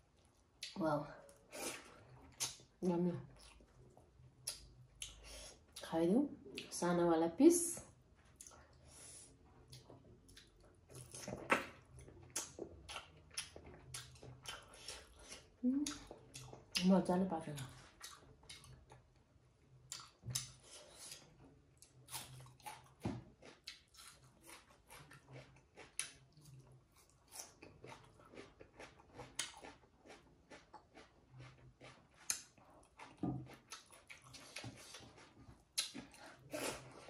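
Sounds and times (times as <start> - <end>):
person chewing food: 3.3 - 5.2, 9.5 - 16.9, 17.7 - 37.0.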